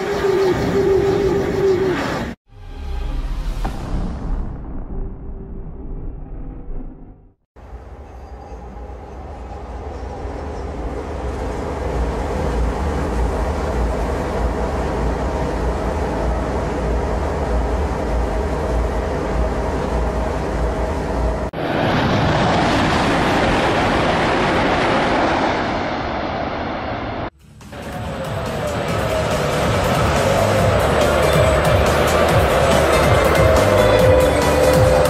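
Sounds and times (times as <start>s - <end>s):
train rumbling on viaduct: 0.0s - 2.4s, 7.6s - 35.0s
train rushing past at speed: 7.6s - 35.0s.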